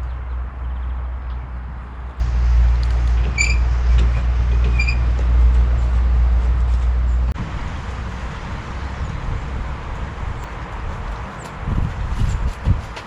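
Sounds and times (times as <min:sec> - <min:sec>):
outdoor background noise: 0:00.0 - 0:13.0
vehicle engine idling: 0:02.1 - 0:10.5.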